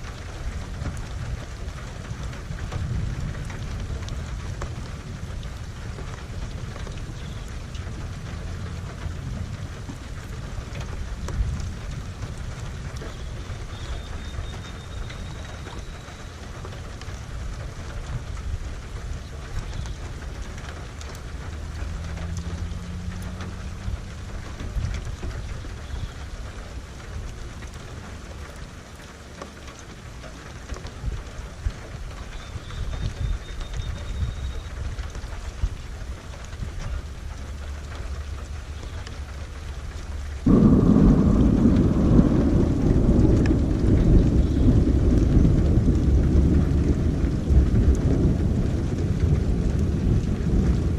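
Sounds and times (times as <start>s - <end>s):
thunder rumbling: 0.0s - 28.4s, 40.4s - 50.9s
rain falling: 0.0s - 50.9s
sharp raindrop ticks: 0.0s - 50.9s.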